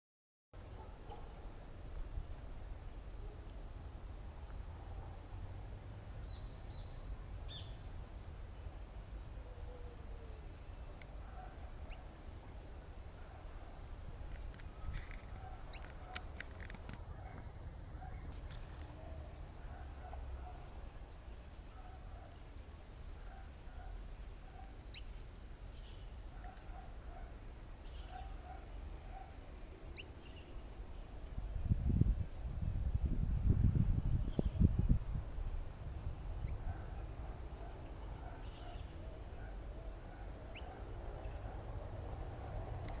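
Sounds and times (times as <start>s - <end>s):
faint bird chirps: 9.4s - 12.1s, 38.2s - 39.5s
low wind rumble: 30.6s - 37.4s.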